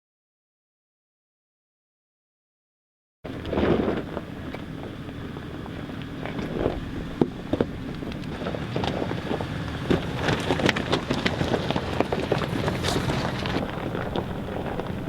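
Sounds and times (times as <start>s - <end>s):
truck engine and road noise: 3.2s - 15.0s
clicks and rattles: 5.9s - 15.0s.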